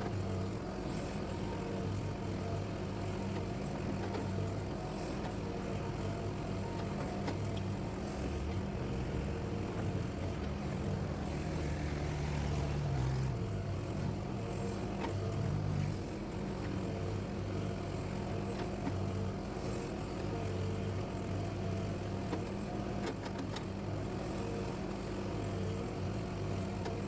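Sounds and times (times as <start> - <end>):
excavator diesel engine running: 0.0 - 21.2.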